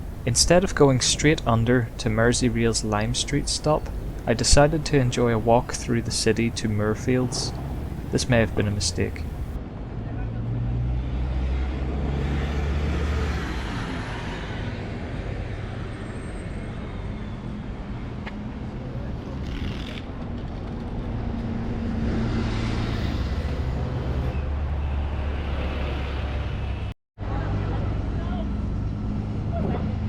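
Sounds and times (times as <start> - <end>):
heavy vehicle engines humming: 0.0 - 10.2
road noise: 0.0 - 30.0.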